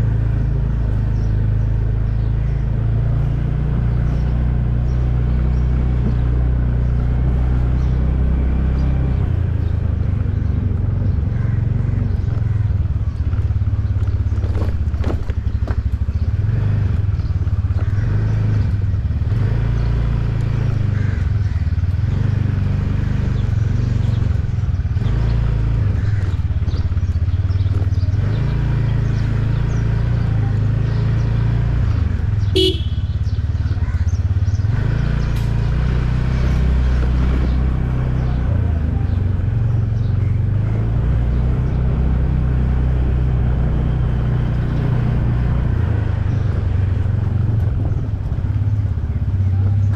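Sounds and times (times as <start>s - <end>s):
motorcycle engine rumbling: 0.0s - 49.9s.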